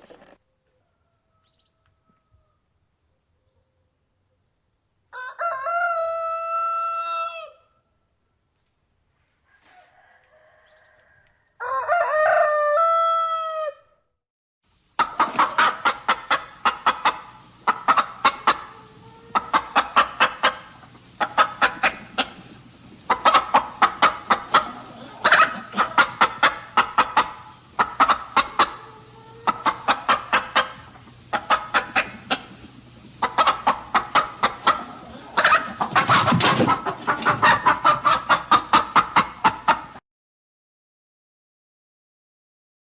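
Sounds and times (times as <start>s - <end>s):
chickens clucking: 0.0s - 2.5s, 15.0s - 40.0s
rooster crowing: 0.4s - 2.7s, 5.1s - 7.8s, 9.5s - 14.0s
faint steady hum: 14.7s - 40.0s.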